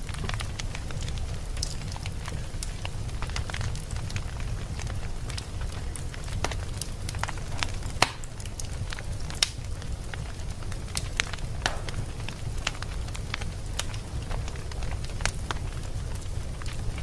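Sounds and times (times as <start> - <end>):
fireplace fire crackling: 0.0 - 17.0
low fire rumble: 0.0 - 17.0.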